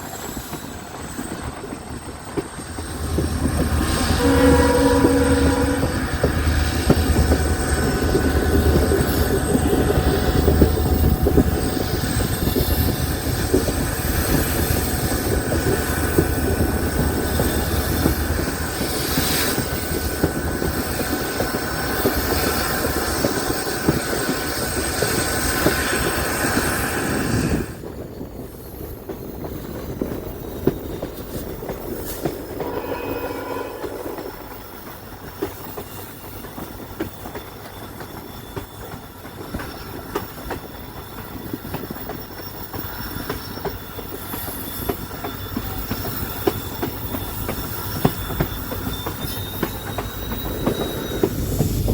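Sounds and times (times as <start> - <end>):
train wheels rumbling on rails: 0.0 - 51.9
thin high whine: 32.5 - 35.3.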